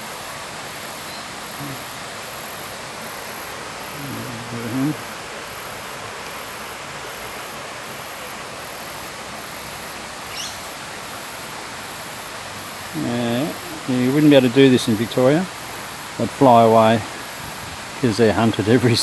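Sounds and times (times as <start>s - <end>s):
high insect buzz: 0.0s - 19.0s
running water around rocks: 0.0s - 19.0s
rising bird chirp: 10.3s - 10.7s.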